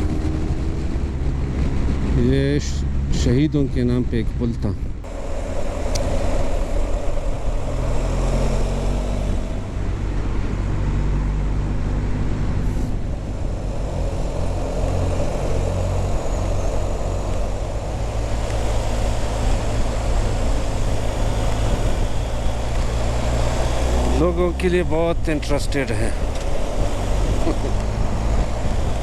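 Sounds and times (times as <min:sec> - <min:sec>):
motorcycle engine drone: 0:00.0 - 0:29.0
wind rushing over microphone: 0:00.0 - 0:29.0.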